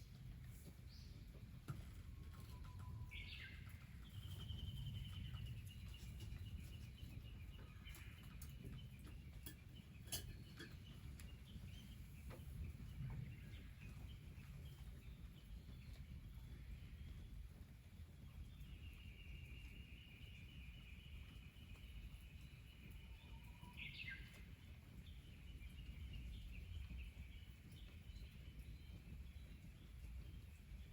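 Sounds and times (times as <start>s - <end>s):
steady low rumble: 0.0s - 9.1s, 11.1s - 18.6s
bird calls and trill: 2.1s - 30.9s.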